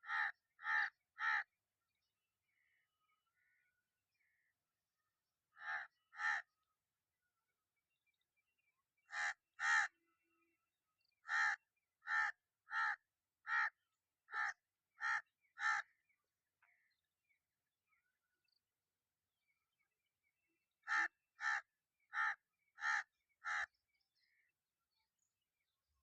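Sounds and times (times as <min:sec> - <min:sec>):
crow cawing: 0:00.0 - 0:01.5, 0:05.6 - 0:06.5, 0:09.1 - 0:09.9, 0:11.2 - 0:15.9, 0:20.8 - 0:23.7.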